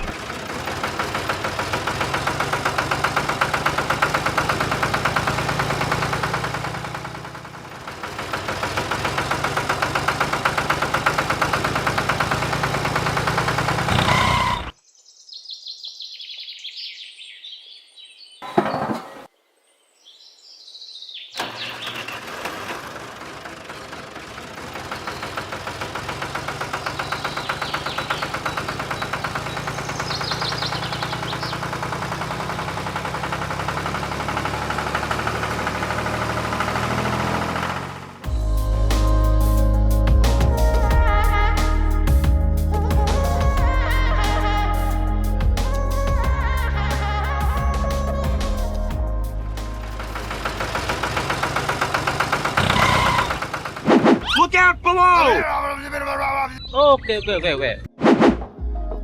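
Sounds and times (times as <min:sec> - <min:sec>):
engine running: 0:00.0 - 0:14.8, 0:21.4 - 0:55.7
birds chirping: 0:13.8 - 0:22.1, 0:24.7 - 0:25.8, 0:26.4 - 0:32.2, 0:54.2 - 0:58.0.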